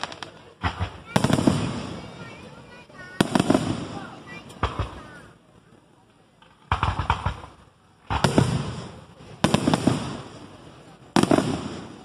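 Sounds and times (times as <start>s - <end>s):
fireworks booming: 0.0s - 5.3s, 6.6s - 12.0s
fireworks popping: 0.0s - 5.4s, 6.4s - 12.0s.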